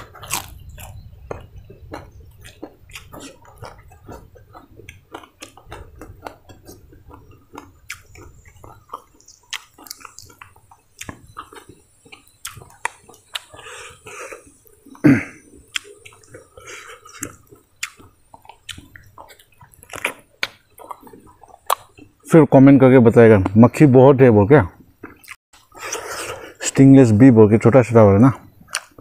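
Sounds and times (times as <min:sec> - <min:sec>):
chewing crispy rice: 0:00.0 - 0:22.3, 0:25.0 - 0:26.6, 0:28.6 - 0:29.0
short throat sound: 0:13.6 - 0:15.9.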